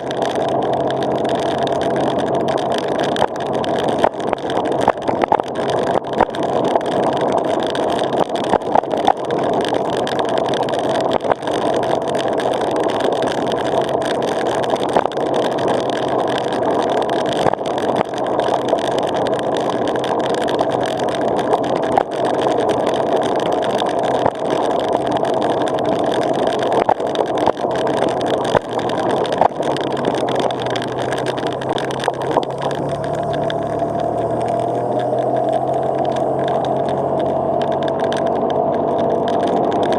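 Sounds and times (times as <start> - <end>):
stones clicking under tyres: 0.0 - 39.9
vehicle engine running: 24.9 - 39.9.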